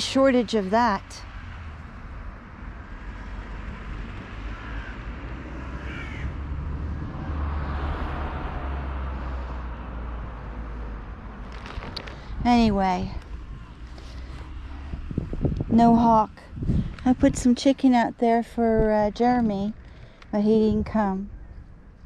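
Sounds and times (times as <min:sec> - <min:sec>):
crows cawing: 0:04.4 - 0:06.4.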